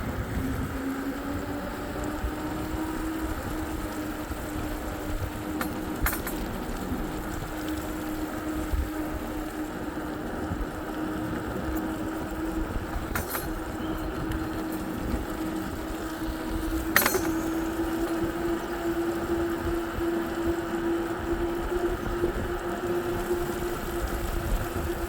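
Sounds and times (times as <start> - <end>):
road and wind rush: 0.0 - 25.0
vehicle hum: 0.0 - 25.0
sharp rattle: 16.8 - 18.2.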